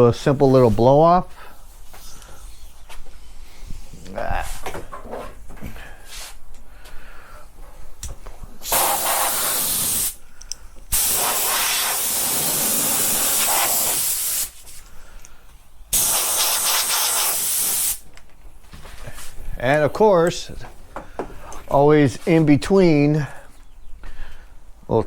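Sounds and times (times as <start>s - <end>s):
compressed air hissing blasts: 8.6s - 15.3s, 15.9s - 18.1s.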